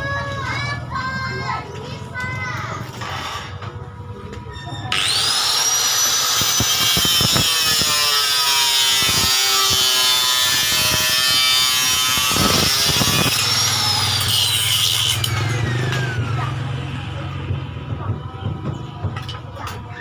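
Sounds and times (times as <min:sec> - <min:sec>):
electric motor whining: 0:04.9 - 0:16.2
scattered knocks: 0:17.4 - 0:19.8.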